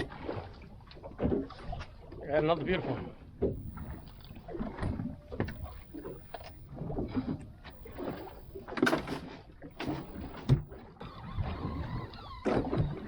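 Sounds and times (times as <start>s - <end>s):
water splashing: 0.0s - 13.0s
knocks on a boat: 9.9s - 10.8s.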